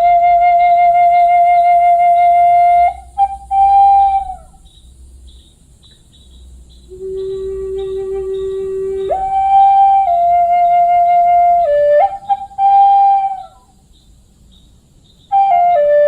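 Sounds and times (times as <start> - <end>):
slow flute music: 0.0 - 4.7, 6.9 - 13.8, 15.3 - 16.0.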